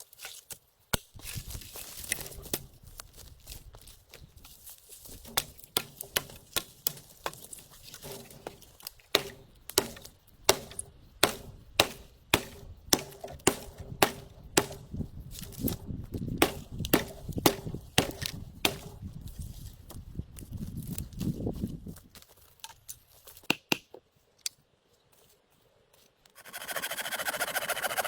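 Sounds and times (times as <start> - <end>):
wood being chopped: 5.2 - 19.1.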